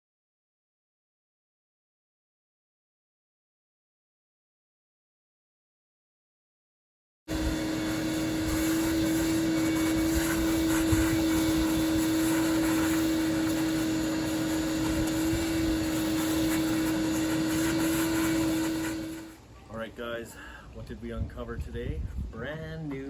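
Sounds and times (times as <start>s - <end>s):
loud motor drone: 7.3s - 19.4s.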